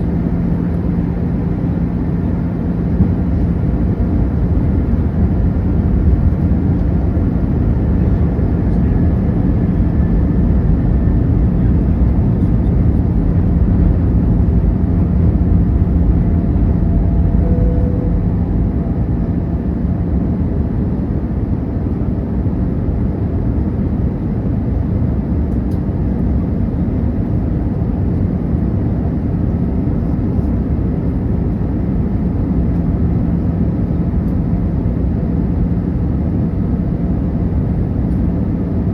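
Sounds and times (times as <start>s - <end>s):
low hum: 0.0s - 23.2s
airliner cabin rumble: 0.0s - 38.9s.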